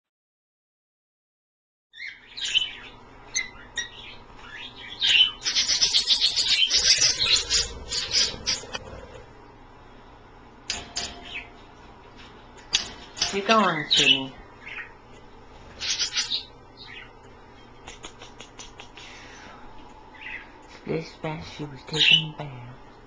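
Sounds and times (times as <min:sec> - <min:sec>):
pet birds chirping: 0:01.9 - 0:09.2, 0:10.8 - 0:11.7, 0:12.7 - 0:19.4, 0:20.0 - 0:20.8, 0:21.9 - 0:23.0.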